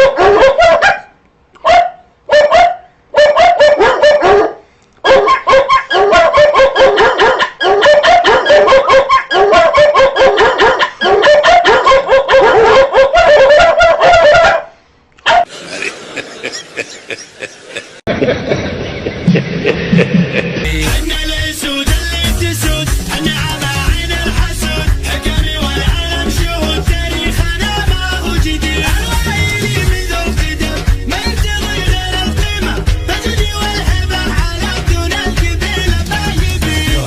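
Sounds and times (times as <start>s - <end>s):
dogs barking: 0.0s - 15.6s.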